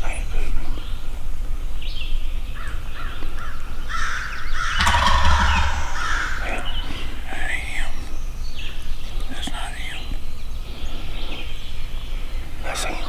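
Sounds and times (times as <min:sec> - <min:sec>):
turkey rattling gobble: 0:04.6 - 0:06.6
turkey harsh calls: 0:04.7 - 0:06.6.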